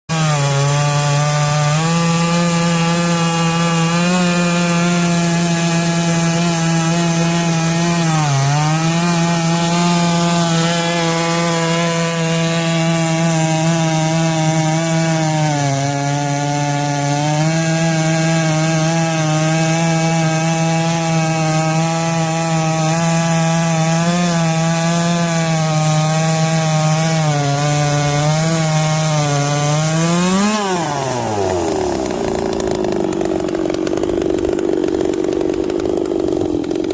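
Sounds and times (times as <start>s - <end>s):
chainsaw cutting log: 0.1s - 36.9s.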